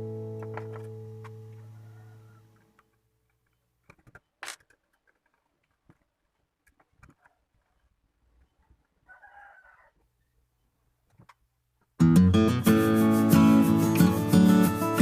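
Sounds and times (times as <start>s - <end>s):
distant rooster crowing: 1.5s - 2.7s, 8.6s - 10.1s.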